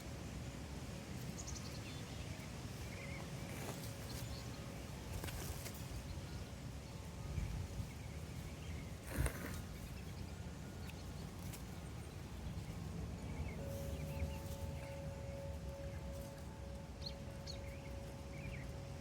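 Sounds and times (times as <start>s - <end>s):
faint rustles: 7.0s - 10.4s.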